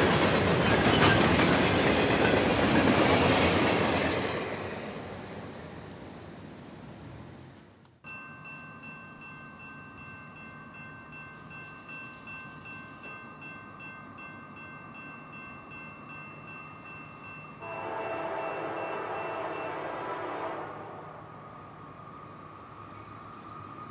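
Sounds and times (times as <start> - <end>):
freight train rumbling: 0.0 - 7.8
locomotive air horn chord: 17.6 - 21.1.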